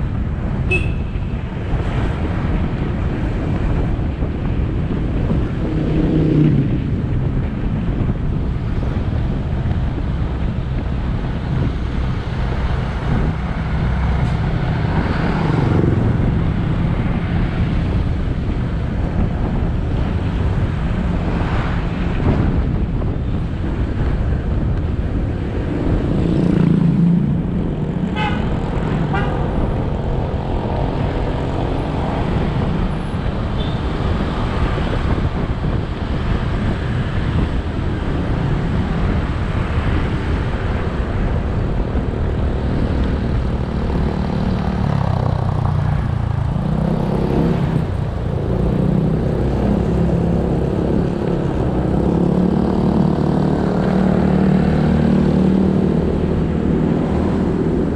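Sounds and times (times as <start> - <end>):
motorcycle engine riding: 0.0 - 57.9
wind and road noise: 0.0 - 57.9
motorcycle horn beeps: 0.7 - 1.3.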